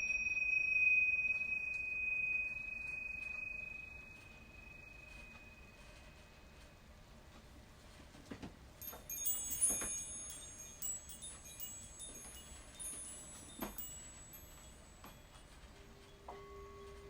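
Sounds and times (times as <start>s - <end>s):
chimes ringing: 0.0s - 6.6s, 8.8s - 16.2s.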